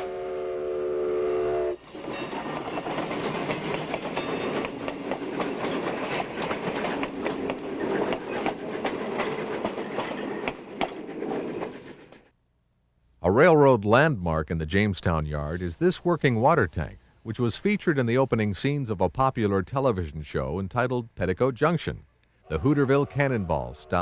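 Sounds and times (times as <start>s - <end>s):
steam locomotive whistle: 0.0s - 2.0s
train wheels clattering on track: 1.9s - 12.3s.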